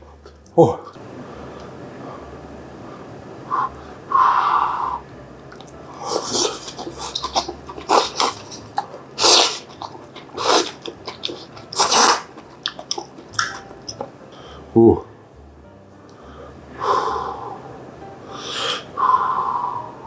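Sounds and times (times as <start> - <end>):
noodles slurped: 5.6 - 13.7
crunchy chewing: 5.6 - 14.1.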